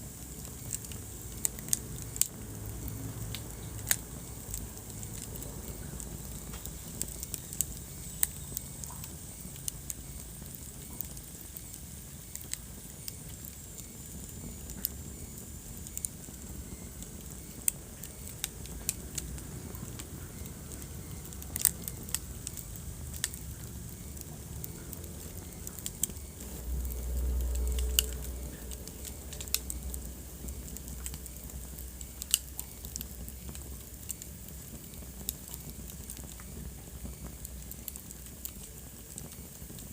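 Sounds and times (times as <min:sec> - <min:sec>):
low rumble of burning: 0:00.0 - 0:39.9
wood fire crackling: 0:00.0 - 0:39.9.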